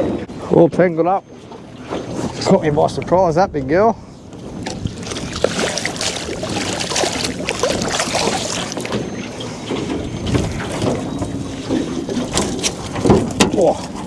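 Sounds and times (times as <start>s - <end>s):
choppy water: 0.0s - 14.0s
wind: 0.0s - 14.0s
small knocks and rustles: 8.8s - 13.7s.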